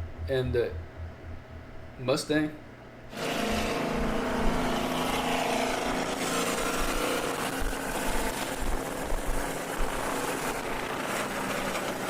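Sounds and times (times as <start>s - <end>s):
car engines racing: 3.1s - 12.0s
road and wind noise: 3.2s - 11.0s.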